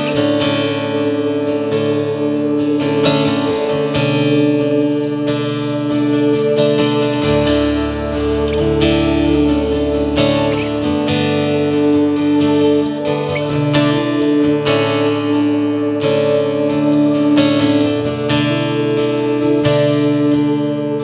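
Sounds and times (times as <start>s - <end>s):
acoustic guitar strumming: 0.0s - 21.0s
low bass note: 7.3s - 11.2s.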